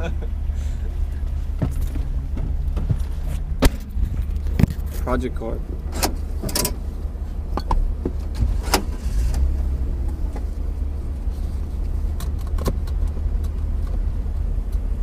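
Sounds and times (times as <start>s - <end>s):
low car rumble: 0.0s - 15.0s
drivetrain knocking underneath: 1.2s - 10.5s.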